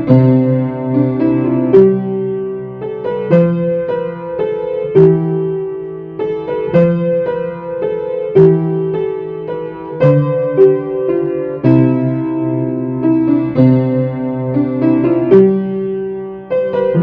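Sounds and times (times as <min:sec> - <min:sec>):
solo piano carol: 0:00.0 - 0:17.0.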